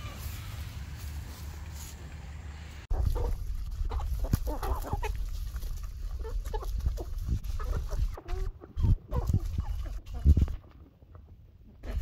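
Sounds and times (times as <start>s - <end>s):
chickens clucking: 2.8s - 12.0s.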